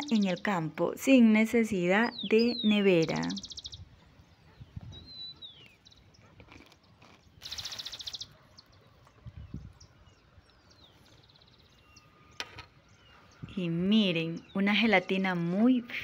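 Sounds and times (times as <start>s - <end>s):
small birds chirping: 0.0s - 16.0s
buzzy bird trill: 7.4s - 8.4s.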